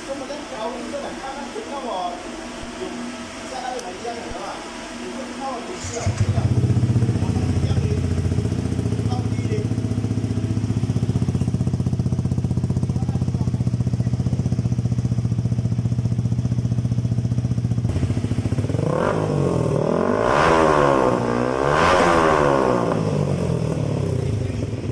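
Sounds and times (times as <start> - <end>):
motorcycle engine idling and revving: 5.8 - 24.9.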